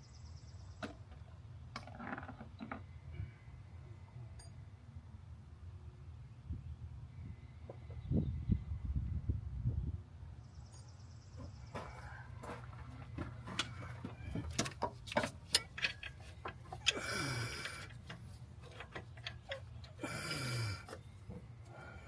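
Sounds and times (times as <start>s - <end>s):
hand tools clicking and knocking: 13.1s - 21.5s.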